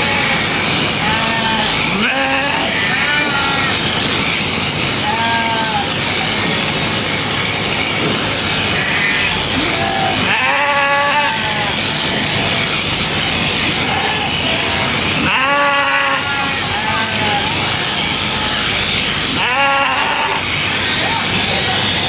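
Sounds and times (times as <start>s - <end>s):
sheep bleating: 0.0s - 7.2s, 8.0s - 22.0s
steady background noise: 0.0s - 22.0s.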